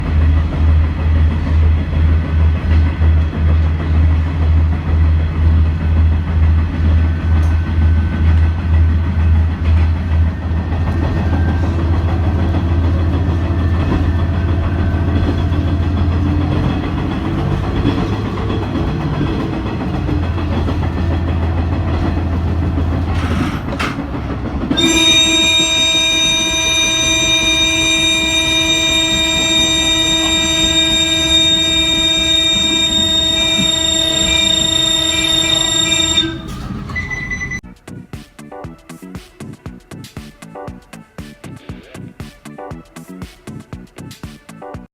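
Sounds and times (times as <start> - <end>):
train running on track: 0.0 - 37.8
train horn blast: 7.2 - 37.6.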